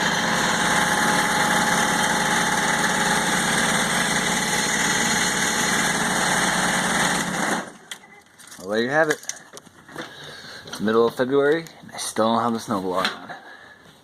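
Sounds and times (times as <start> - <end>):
diesel engine running: 0.0 - 7.8.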